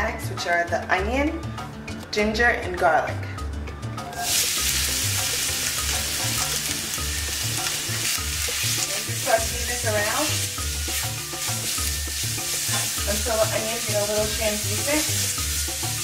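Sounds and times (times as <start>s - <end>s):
vegetables sizzling in oil: 4.2s - 16.0s.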